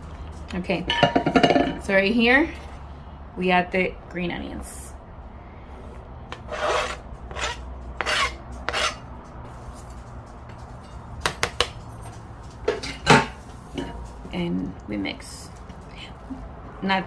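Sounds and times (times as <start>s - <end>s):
utensil scraping cookware: 0.9s - 1.8s, 6.4s - 9.1s, 12.7s - 14.0s.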